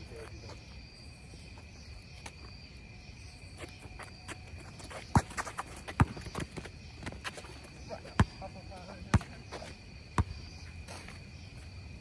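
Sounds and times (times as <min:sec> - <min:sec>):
crickets chirring: 0:00.0 - 0:12.0
basketball bouncing on court: 0:05.1 - 0:06.7, 0:08.1 - 0:10.5.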